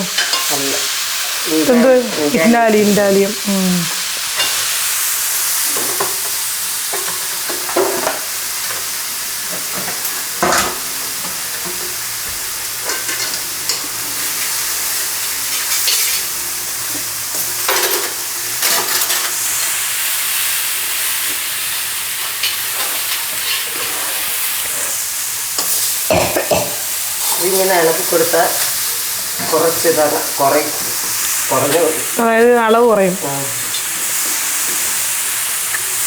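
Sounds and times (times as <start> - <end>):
spinach sizzling in a pan: 0.0 - 36.0
spatula scraping a pan: 22.2 - 25.0.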